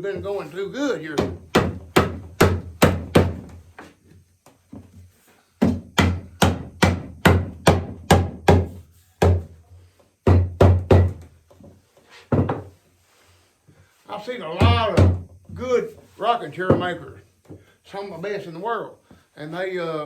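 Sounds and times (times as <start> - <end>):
hammer knocking wood: 1.1 - 3.6, 5.6 - 9.6, 10.2 - 11.3, 14.6 - 15.3, 16.7 - 17.6.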